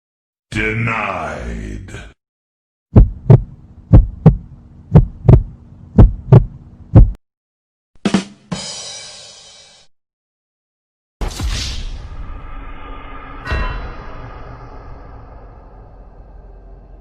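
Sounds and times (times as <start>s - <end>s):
heartbeat thumps: 2.9s - 7.2s.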